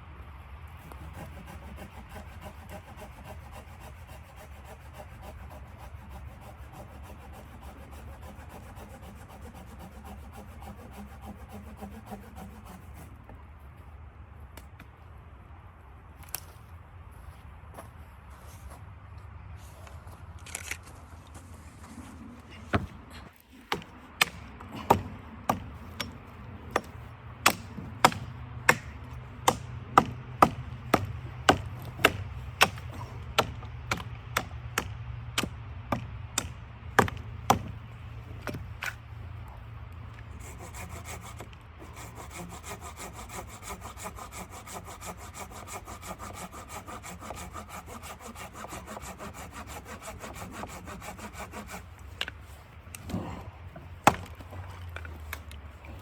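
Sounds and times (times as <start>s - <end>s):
hand saw cutting wood: 0.8s - 13.2s, 21.9s - 39.0s, 40.2s - 56.0s
sharp knocks on wood: 23.7s - 28.9s, 54.0s - 54.4s.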